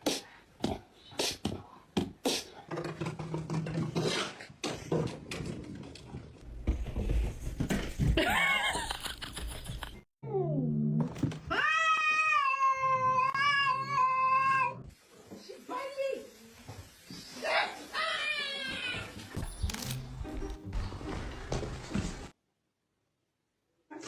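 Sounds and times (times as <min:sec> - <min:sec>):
cat meowing: 0:11.5 - 0:14.8
cat yowling: 0:11.5 - 0:14.8.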